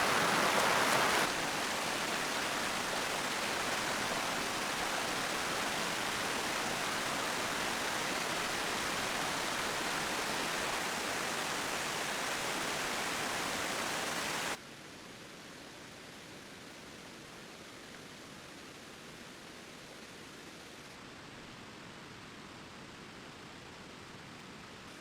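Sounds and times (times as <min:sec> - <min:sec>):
rushing water hiss: 0:00.0 - 0:14.6
faint hiss: 0:00.0 - 0:25.0.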